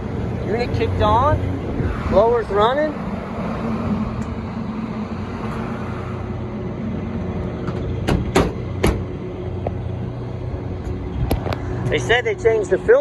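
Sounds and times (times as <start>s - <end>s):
sharp knocks: 7.7s - 9.1s.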